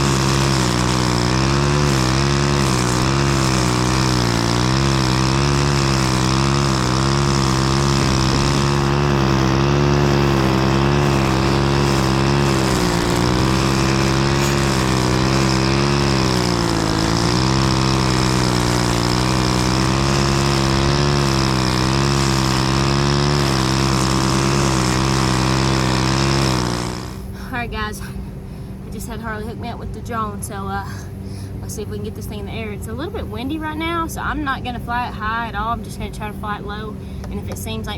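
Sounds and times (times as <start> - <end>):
lawn mower engine running: 0.0 - 27.8.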